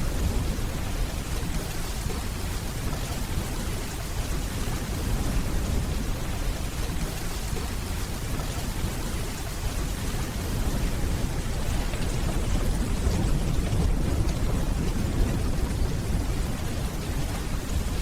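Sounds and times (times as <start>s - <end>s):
rain hissing on hard surfaces: 0.0s - 18.0s
distant thunder rumbling: 9.6s - 18.0s.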